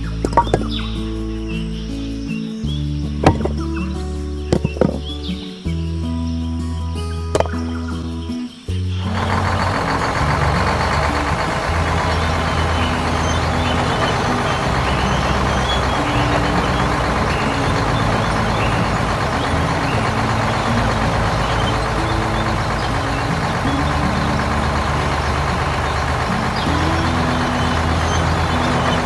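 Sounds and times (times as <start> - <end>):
background music: 0.0 - 29.0
small tractor engine running: 9.0 - 29.0.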